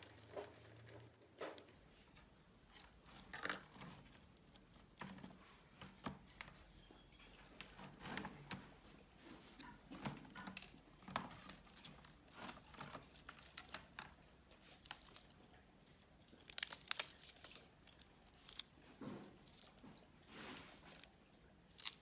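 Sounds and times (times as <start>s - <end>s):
small tools clicking and scraping: 9.6s - 15.5s.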